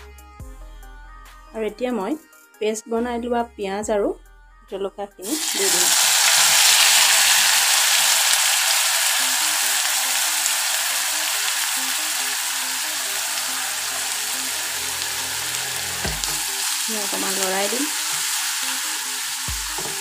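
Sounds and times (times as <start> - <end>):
paste sizzling in hot oil: 5.2 - 20.0.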